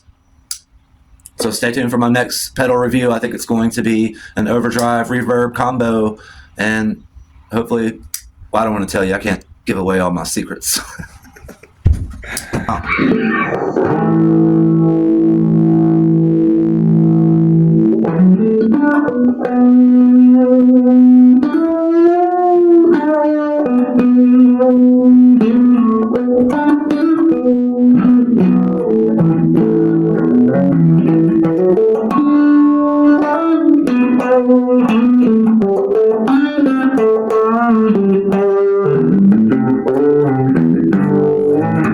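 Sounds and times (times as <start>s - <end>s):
electric guitar melody: 12.9s - 41.9s.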